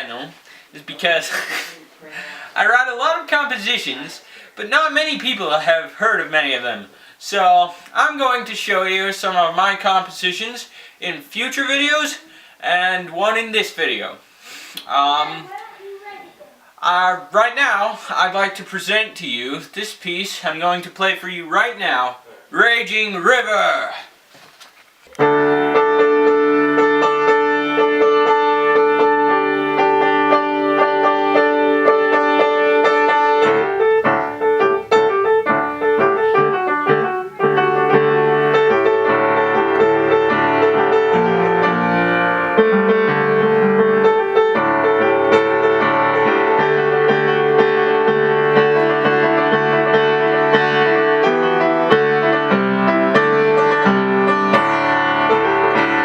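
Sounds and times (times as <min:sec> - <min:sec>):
solo piano: 0:25.2 - 0:56.0.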